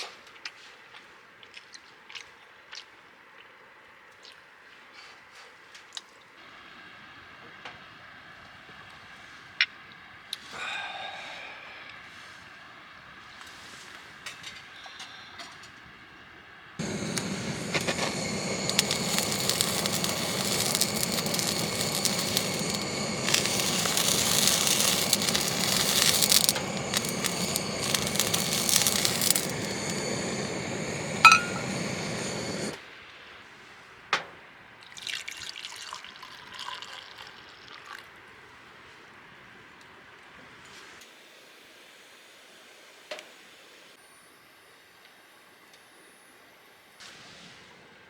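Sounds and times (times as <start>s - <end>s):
water running: 16.8s - 32.0s
ringing clink: 31.2s - 31.7s.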